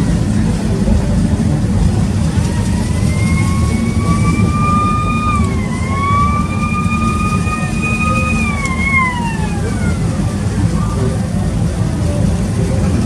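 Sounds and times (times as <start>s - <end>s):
heavy engine rumble: 0.0s - 13.0s
vehicle high-pitched whine: 0.0s - 13.0s.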